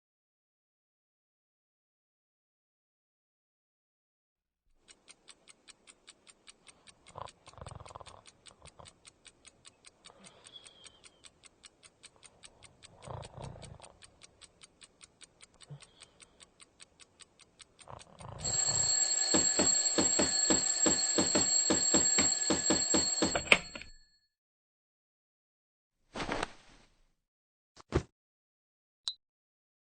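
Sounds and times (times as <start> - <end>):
clock ticking: 4.8 - 24.0
alarm clock bell ringing: 18.4 - 24.1.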